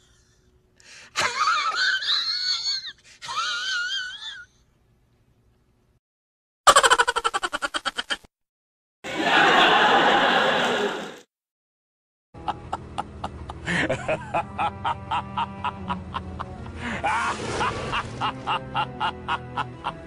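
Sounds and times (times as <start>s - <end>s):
person laughing: 1.2s - 4.5s, 6.7s - 8.3s, 12.4s - 20.0s.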